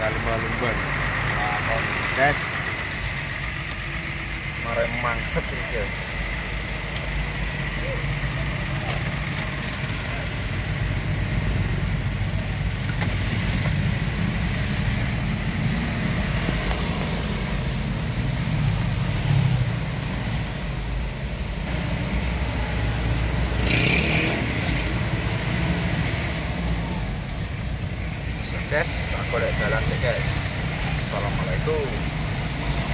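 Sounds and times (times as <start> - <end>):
vehicle engine low rumble: 0.0 - 32.9.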